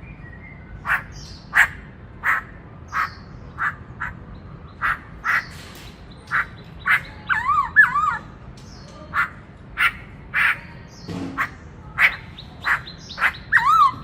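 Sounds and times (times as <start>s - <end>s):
bird harsh calls: 0.0s - 14.0s.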